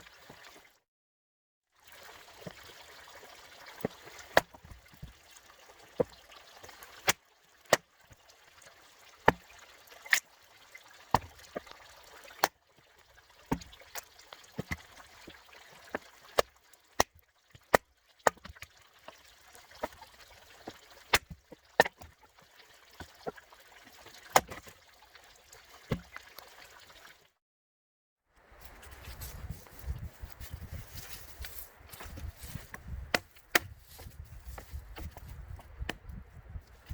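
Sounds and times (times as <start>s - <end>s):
maul chopping firewood: 4.2s - 5.1s, 11.1s - 11.6s, 13.5s - 13.8s, 15.9s - 18.6s, 21.1s - 22.1s, 24.2s - 24.7s, 31.4s - 36.9s.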